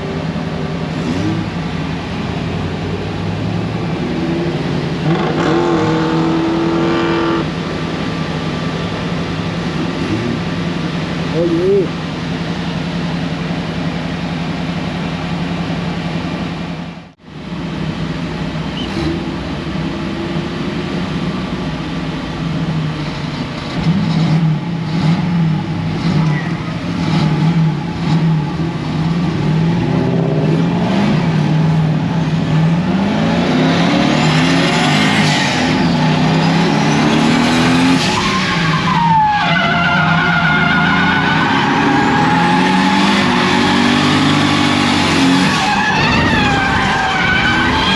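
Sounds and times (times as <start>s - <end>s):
car engine revving hard: 0.9s - 7.8s, 23.7s - 47.9s
tyres squealing: 35.4s - 43.9s, 45.2s - 47.9s.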